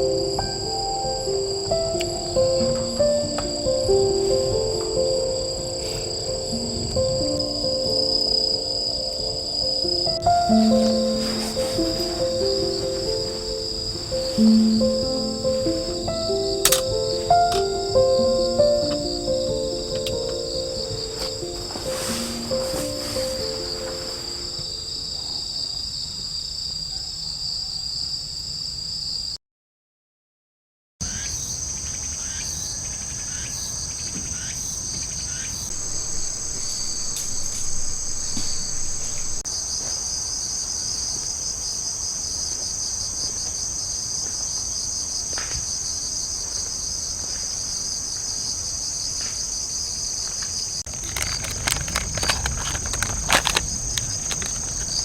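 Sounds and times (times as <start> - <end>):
crickets and night insects chirring: 0.0 - 29.4, 31.0 - 55.0
firewood crackling: 9.6 - 24.6, 35.7 - 39.4, 50.9 - 55.0.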